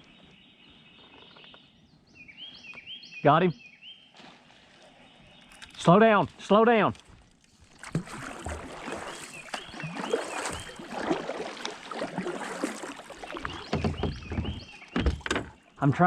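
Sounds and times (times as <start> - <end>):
water splashing and sloshing: 4.1 - 6.0, 6.8 - 16.0
knocks and rattles on kayak: 7.0 - 16.0.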